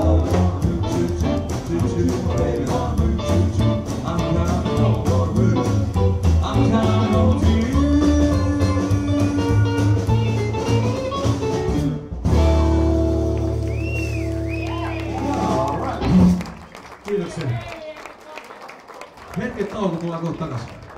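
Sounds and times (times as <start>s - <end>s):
man singing: 0.0s - 10.6s
live blues band playing: 0.0s - 17.0s.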